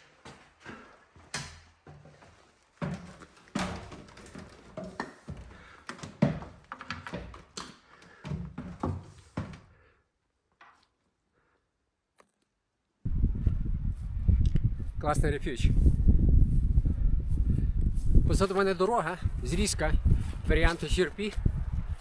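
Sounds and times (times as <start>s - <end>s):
knocks and thuds in a room: 0.3s - 9.8s
door sounds: 2.8s - 9.7s.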